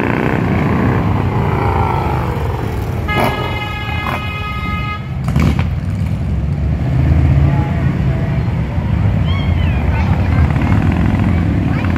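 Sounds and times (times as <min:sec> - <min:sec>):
motorcycle engines rumbling: 0:00.0 - 0:11.9
vehicle horn: 0:03.0 - 0:05.2.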